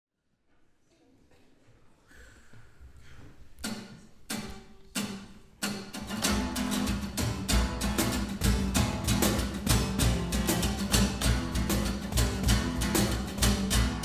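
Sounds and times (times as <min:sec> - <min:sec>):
acoustic guitar strumming: 0:03.6 - 0:14.0.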